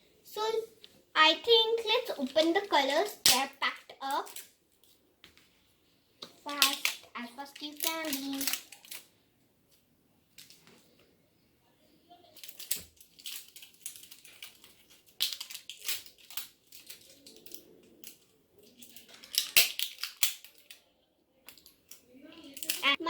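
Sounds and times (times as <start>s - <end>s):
plastic packaging rustling and crinkling: 0.8s - 9.2s, 12.2s - 20.9s, 21.5s - 23.0s
sharp plastic clicks: 6.2s - 9.1s, 18.8s - 20.8s.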